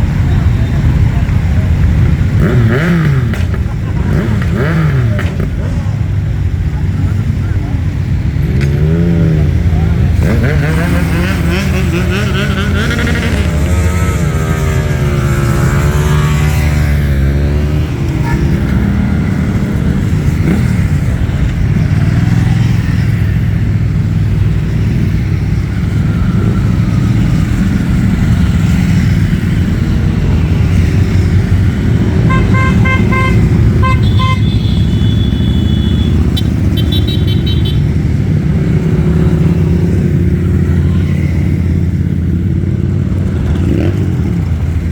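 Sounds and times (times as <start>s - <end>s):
motorcycle engines revving: 0.0s - 44.9s
horns tooting: 31.6s - 42.8s.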